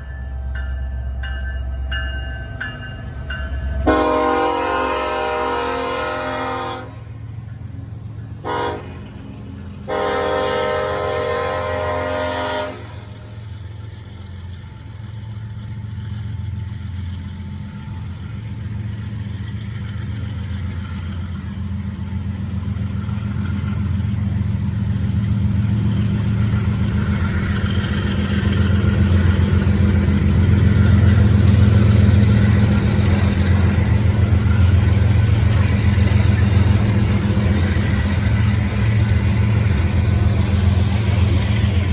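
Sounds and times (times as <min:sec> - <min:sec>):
locomotive engine rumbling: 0:00.0 - 0:41.9
locomotive horn blasts: 0:03.8 - 0:07.1, 0:08.4 - 0:09.1, 0:09.9 - 0:13.4.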